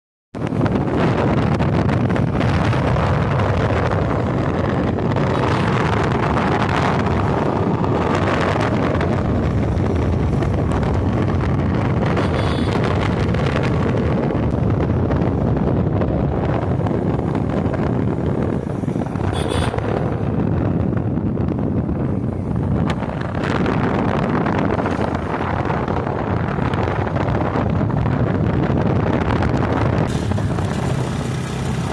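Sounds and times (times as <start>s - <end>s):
wind rushing over microphone: 0.4s - 31.9s
motorcycle engine running: 30.1s - 31.9s.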